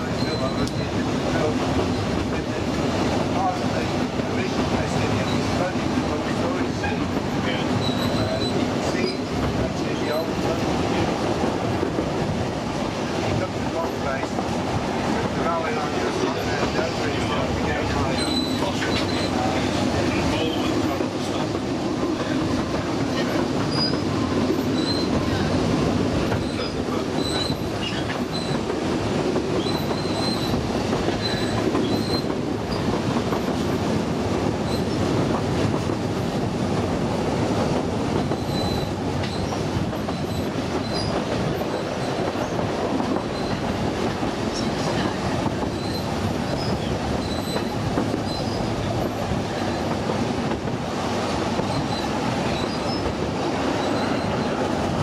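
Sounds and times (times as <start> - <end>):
train wheels rumbling on track: 0.0 - 55.0
wheel squeals: 0.1 - 1.0, 7.8 - 9.3, 18.1 - 19.5, 23.2 - 25.5, 26.4 - 28.6, 29.6 - 30.6, 31.2 - 32.8, 38.4 - 42.6, 43.3 - 43.6, 45.6 - 49.8, 51.6 - 54.6.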